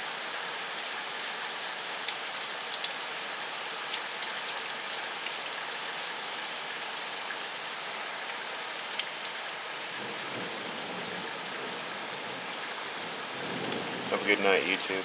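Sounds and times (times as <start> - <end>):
heavy rain: 0.0 - 15.0
raindrops ticking close by: 8.0 - 15.0.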